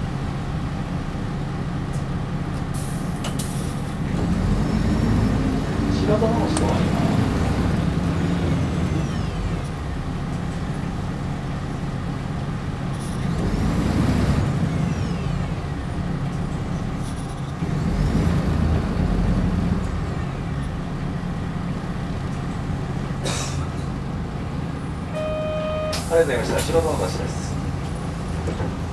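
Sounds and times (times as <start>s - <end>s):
diesel engine droning: 0.0s - 28.9s
air brake hisses: 25.8s - 27.2s.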